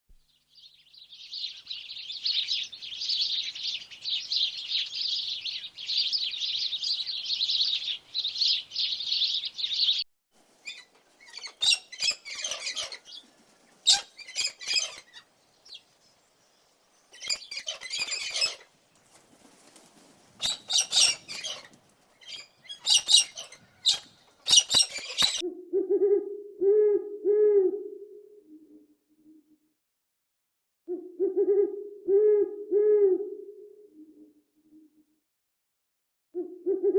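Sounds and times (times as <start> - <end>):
high bird chirping: 0.4 - 10.0, 10.7 - 13.3, 13.9 - 15.9, 17.1 - 18.6, 20.4 - 25.4.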